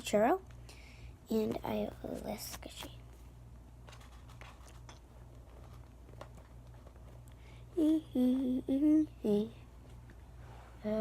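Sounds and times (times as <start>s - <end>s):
steady low hum: 0.0s - 11.0s
girl humming: 7.7s - 9.7s.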